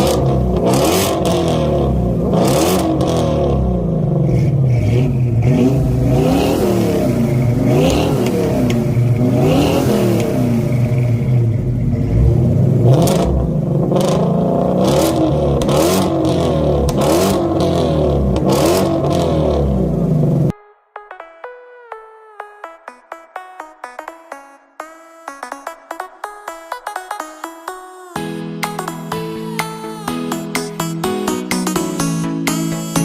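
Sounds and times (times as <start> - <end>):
car engines revving: 0.0 - 20.5.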